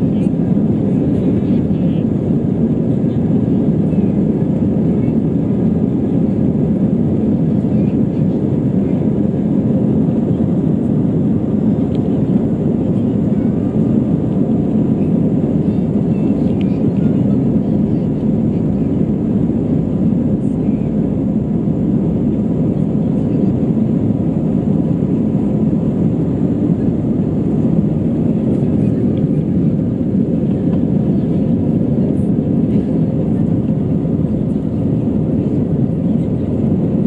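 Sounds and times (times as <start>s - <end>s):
jet engine and airflow rumble: 0.0s - 37.0s.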